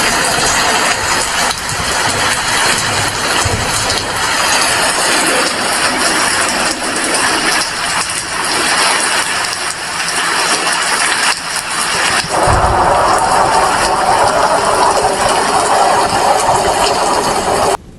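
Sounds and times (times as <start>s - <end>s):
heavy rain falling: 0.0s - 17.8s
brief low rumbles: 12.3s - 15.4s.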